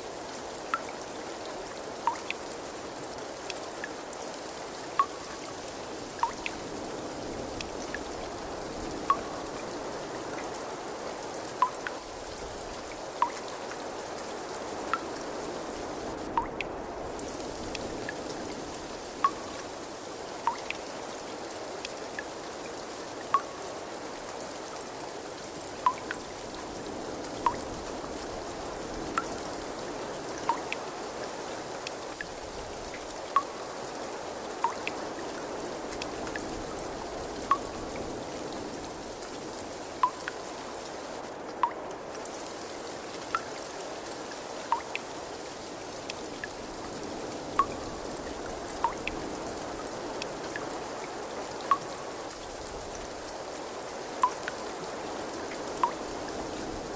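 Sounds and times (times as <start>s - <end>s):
water trickling: 0.0s - 56.9s
drops plinking into water: 2.1s - 2.4s, 13.2s - 13.4s, 54.2s - 54.5s.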